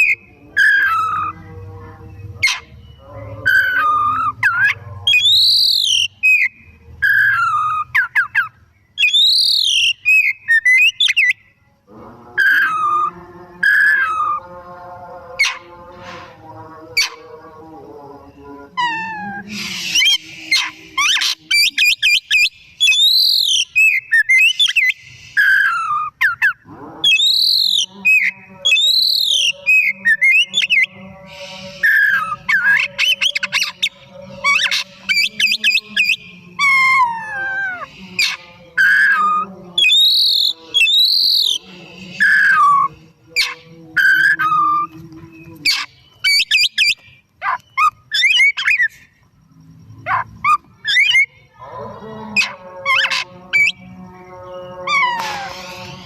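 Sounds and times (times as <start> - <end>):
bird singing whistled song: 0.0 - 1.4, 2.2 - 11.6, 12.4 - 14.4, 18.8 - 49.2, 50.4 - 51.4.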